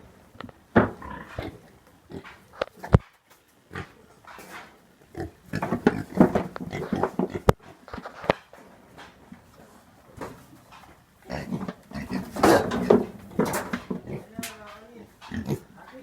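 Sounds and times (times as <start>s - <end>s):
pigs grunting: 0.2s - 16.0s
sharp knocks: 11.6s - 15.6s.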